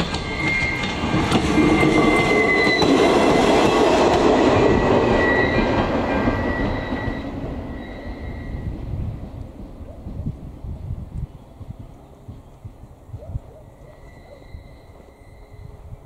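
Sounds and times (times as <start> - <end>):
high wheel squeal: 0.0 - 3.6, 4.6 - 8.8, 13.8 - 16.0
railcar wheels rumbling on rails: 0.0 - 16.0.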